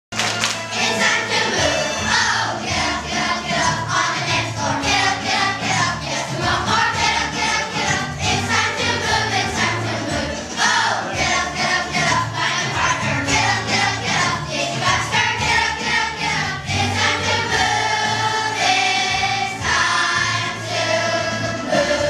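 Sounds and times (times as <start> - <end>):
accompaniment with regular beat: 0.1 - 22.0
group of voices singing: 0.6 - 22.0.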